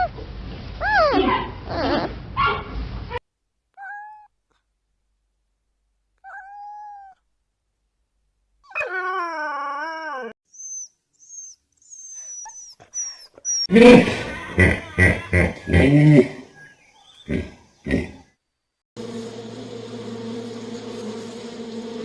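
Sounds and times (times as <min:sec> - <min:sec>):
thin whining animal calls: 0:08.7 - 0:13.7
chorus of high yelping cries: 0:08.7 - 0:16.7
high chirps: 0:10.5 - 0:13.7.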